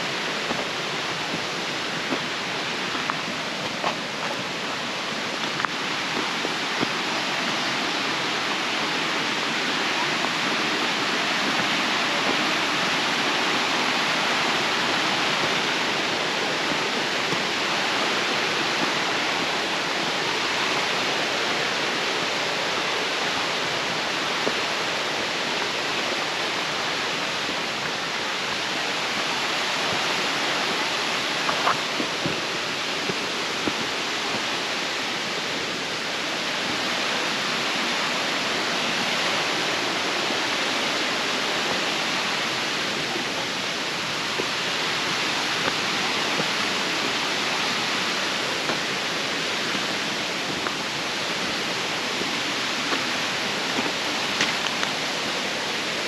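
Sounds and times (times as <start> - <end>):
steady rushing noise: 0.0 - 56.0.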